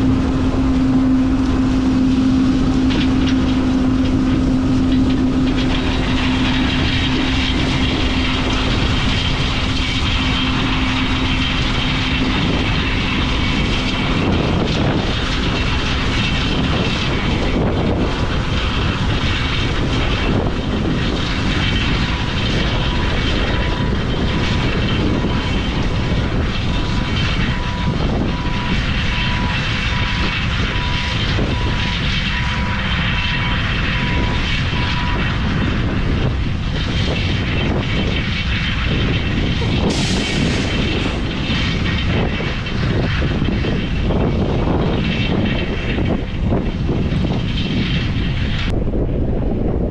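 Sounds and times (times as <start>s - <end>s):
low steady hum: 0.0s - 18.4s
harvester engine and fan noise: 0.0s - 49.9s.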